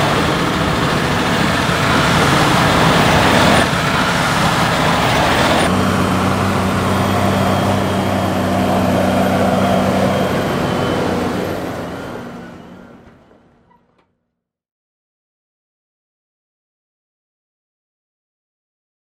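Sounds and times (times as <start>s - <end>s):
tractor engine running: 0.0s - 13.8s.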